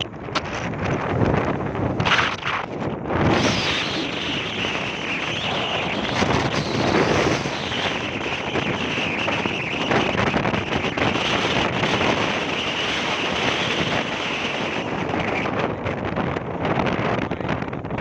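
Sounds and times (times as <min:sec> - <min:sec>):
storm wind buffeting microphone: 0:00.0 - 0:18.0
surf breaking on beach: 0:01.9 - 0:15.3.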